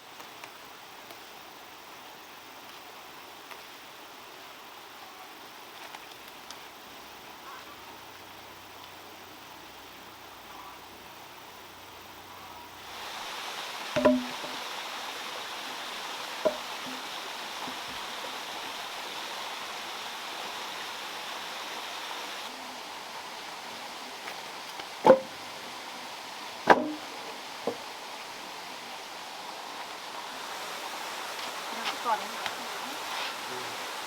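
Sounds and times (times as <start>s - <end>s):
flowing water rushing: 11.7s - 34.0s
sharp knocks: 14.0s - 14.6s, 16.4s - 16.6s, 25.0s - 25.3s, 26.7s - 27.0s.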